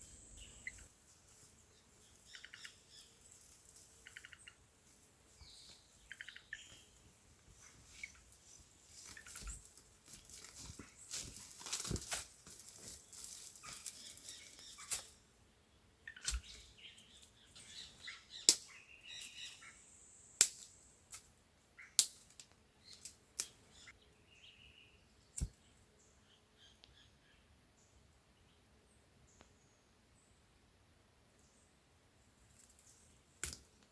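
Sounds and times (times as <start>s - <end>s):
twigs rustling: 7.4s - 15.2s
dry twigs snapping: 9.1s - 15.1s, 22.0s - 23.5s, 33.4s - 33.7s.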